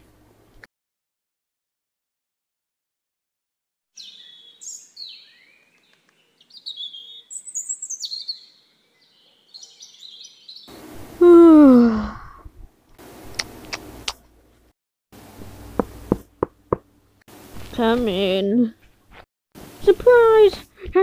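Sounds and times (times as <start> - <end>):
songbirds chirping and trilling: 4.0 - 10.9.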